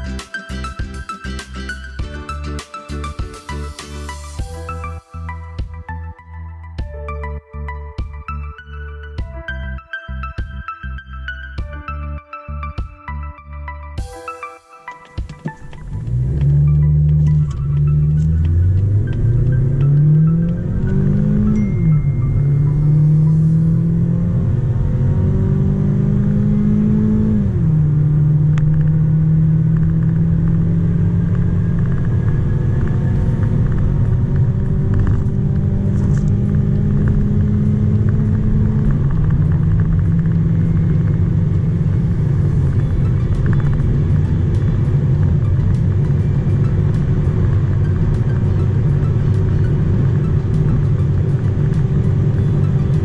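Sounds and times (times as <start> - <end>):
road and wind noise: 14.9 - 53.0
car engine pulling hard: 15.8 - 53.0.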